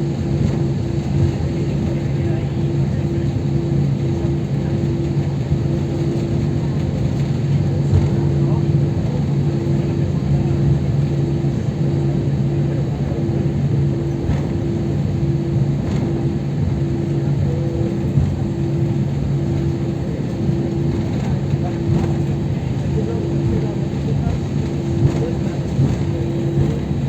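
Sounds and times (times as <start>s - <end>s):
airliner cabin rumble: 0.0s - 27.0s.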